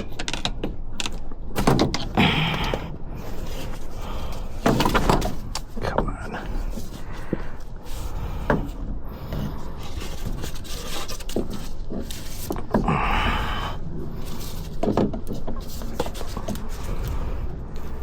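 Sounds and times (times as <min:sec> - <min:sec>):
metal parts and tools clunking: 0:00.0 - 0:12.8
low steady hum: 0:00.0 - 0:18.0
scraping rasp: 0:03.2 - 0:13.1.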